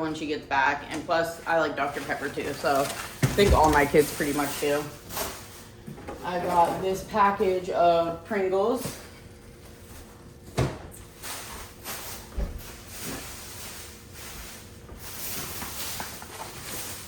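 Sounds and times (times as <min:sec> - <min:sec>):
groceries knocking set down: 0:01.8 - 0:07.1.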